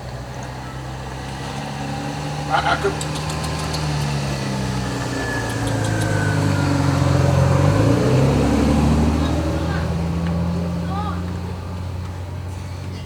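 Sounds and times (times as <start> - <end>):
engine idling: 0.0 - 7.9.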